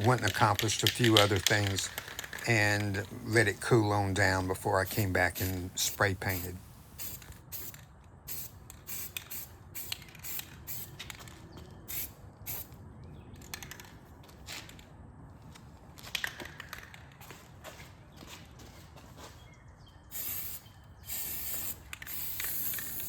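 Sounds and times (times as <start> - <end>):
spray paint can hissing: 0.1 - 10.9, 11.9 - 12.7, 20.1 - 23.0.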